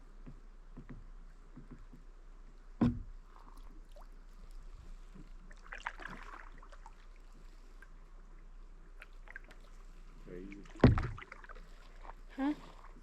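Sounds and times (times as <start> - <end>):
kayak paddle strokes: 2.8 - 8.2, 8.8 - 13.0
water splashing and dripping: 3.4 - 7.9, 8.9 - 12.2.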